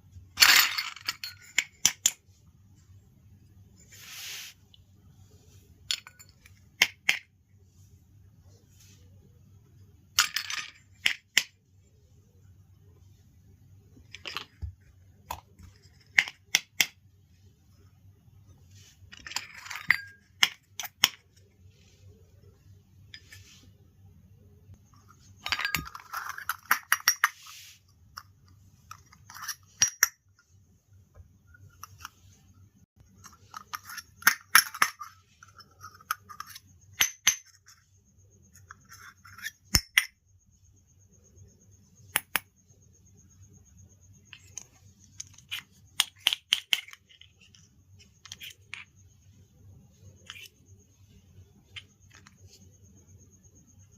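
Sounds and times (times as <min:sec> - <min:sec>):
rustling: 0:03.8 - 0:05.9
plastic toy pieces clicking: 0:44.4 - 0:48.9.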